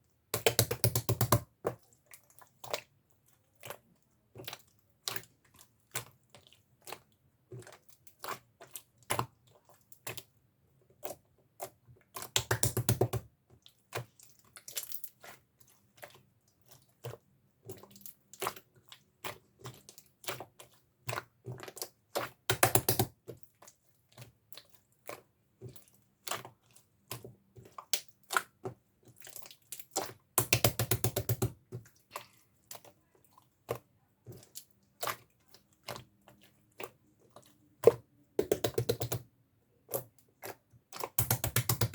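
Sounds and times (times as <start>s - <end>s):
rapid crackling of slime: 11.0s - 41.9s.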